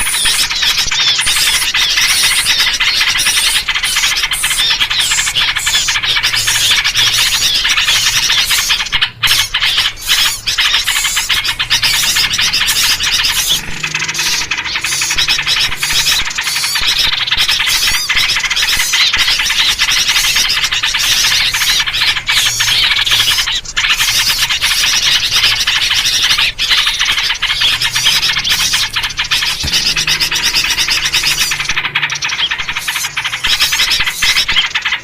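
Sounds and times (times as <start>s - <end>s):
bulbul calls: 0.0s - 35.0s
small birds scolding calls: 0.0s - 35.0s.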